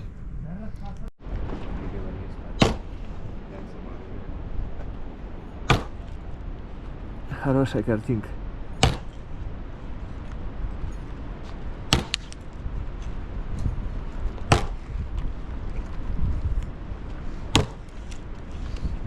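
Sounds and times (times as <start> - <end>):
steady low rumble: 0.0 - 19.0
sharp knocks: 2.6 - 3.0, 5.6 - 6.1, 8.8 - 9.2, 11.9 - 12.4, 14.5 - 14.8, 17.5 - 17.9.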